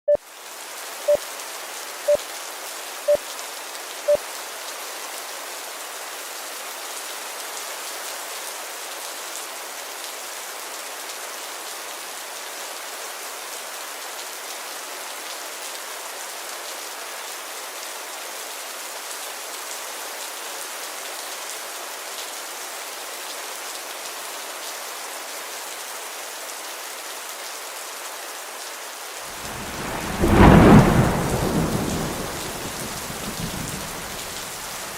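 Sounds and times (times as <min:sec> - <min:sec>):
steady rain falling: 0:00.2 - 0:34.9.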